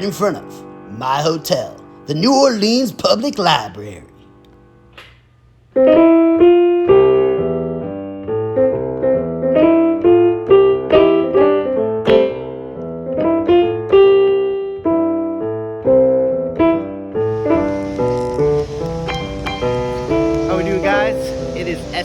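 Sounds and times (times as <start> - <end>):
solo piano music: 5.7 - 22.0.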